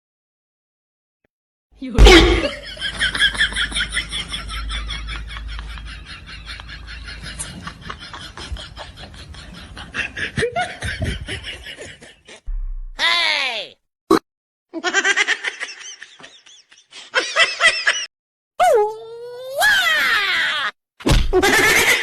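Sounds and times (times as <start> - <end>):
person laughing hard: 2.0 - 12.4.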